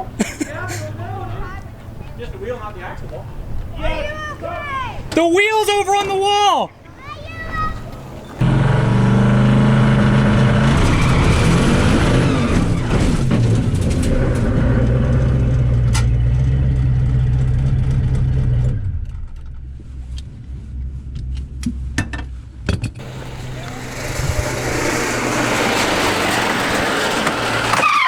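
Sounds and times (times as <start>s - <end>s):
loud drag car engine running: 8.4s - 19.2s, 23.0s - 28.0s.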